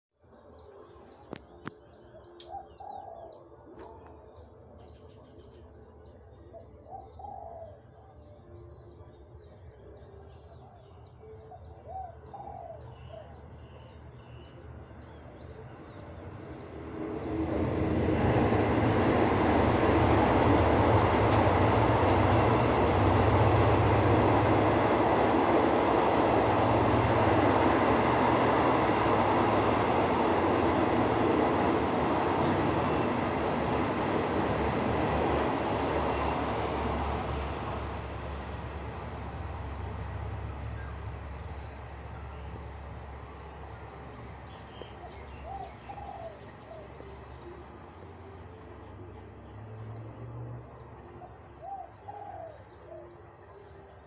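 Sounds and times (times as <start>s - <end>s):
passing train rumble: 0.2s - 54.0s
birds chirping: 38.6s - 54.0s
dove cooing: 45.4s - 46.9s, 51.6s - 53.2s.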